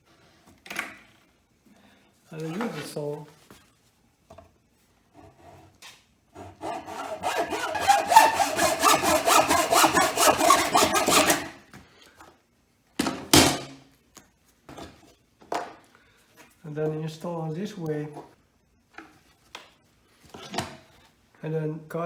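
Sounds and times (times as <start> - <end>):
handsaw cutting wood: 6.4 - 11.6.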